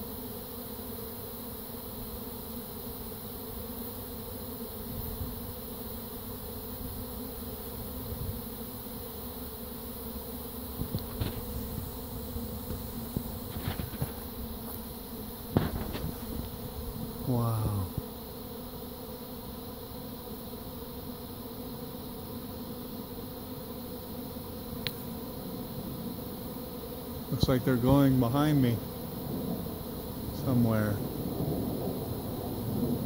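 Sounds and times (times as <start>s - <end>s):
swarm of bees humming: 0.0s - 33.0s
faint ticks: 24.8s - 25.0s.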